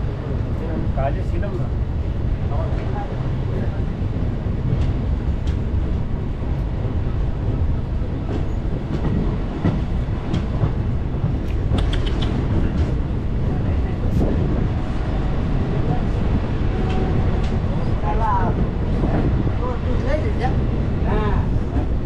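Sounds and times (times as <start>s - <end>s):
train rumble: 0.0s - 22.0s
coach creaks and clicks: 11.4s - 13.0s.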